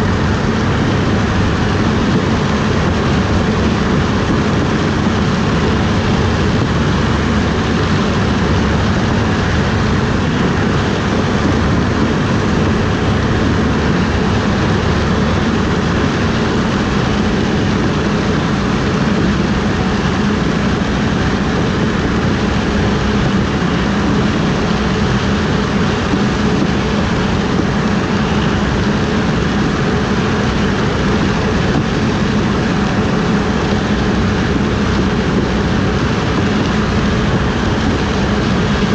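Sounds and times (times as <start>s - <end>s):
harvest machinery droning: 0.0s - 38.9s.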